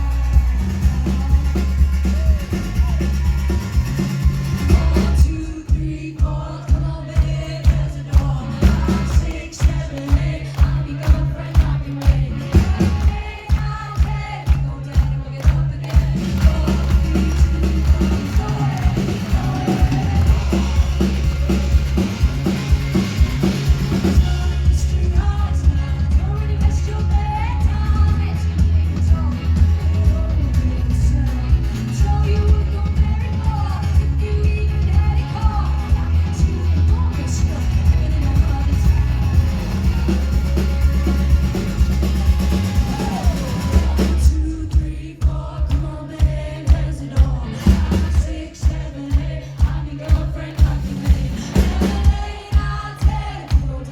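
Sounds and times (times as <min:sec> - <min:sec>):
rock band playing live: 0:00.0 - 0:53.9
woman singing: 0:04.5 - 0:53.9
hard-hit drum strokes: 0:16.0 - 0:26.3, 0:37.2 - 0:53.9.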